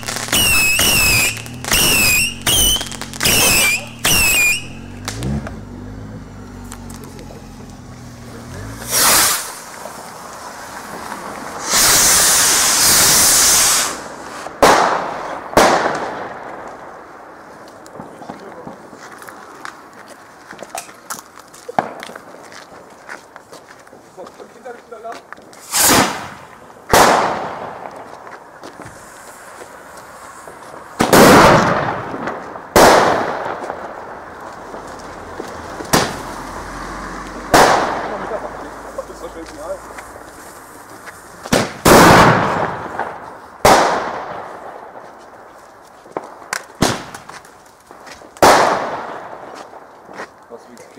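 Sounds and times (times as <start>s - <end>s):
firework hissing whoosh: 0.0s - 5.4s, 8.8s - 15.6s, 25.6s - 27.5s, 28.8s - 31.9s, 39.8s - 43.8s
firework bangs: 0.0s - 5.7s, 8.8s - 19.0s, 21.7s - 22.4s, 25.6s - 36.4s, 37.4s - 45.5s, 46.1s - 50.0s.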